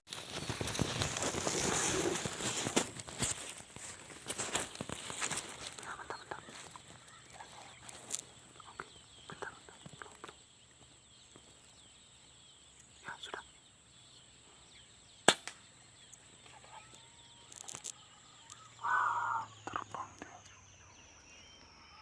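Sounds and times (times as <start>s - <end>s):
noisy rustle: 0.1s - 10.3s
air rifle shot: 15.2s - 15.6s.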